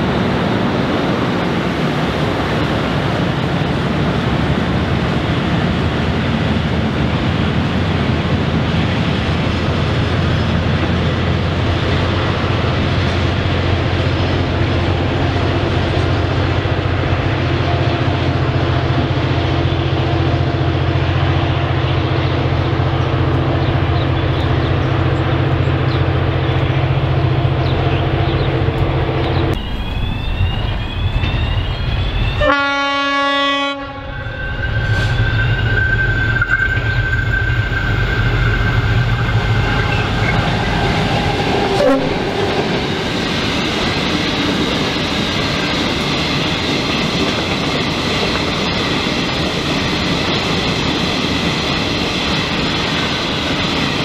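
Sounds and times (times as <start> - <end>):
train rumbling: 0.0 - 54.0
locomotive horn blast: 32.4 - 41.0, 41.7 - 42.3.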